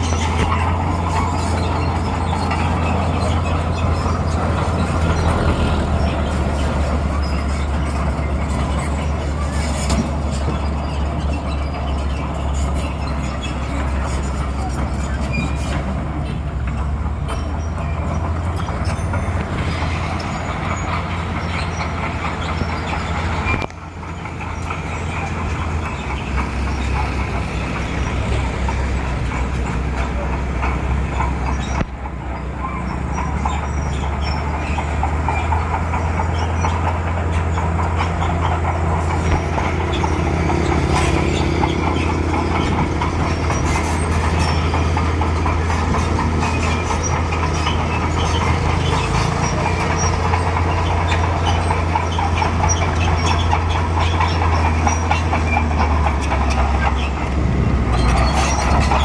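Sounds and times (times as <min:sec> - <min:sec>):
diesel engine running: 0:00.0 - 0:59.0
metallic clatter of steel tracks: 0:00.0 - 0:59.0.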